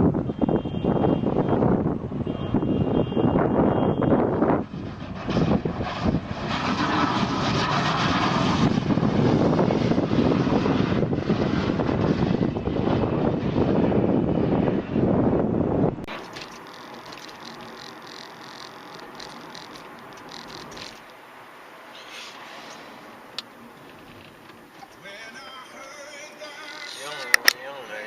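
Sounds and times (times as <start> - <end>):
wind noise: 0.0 - 21.1
vehicle road noise: 0.0 - 28.0.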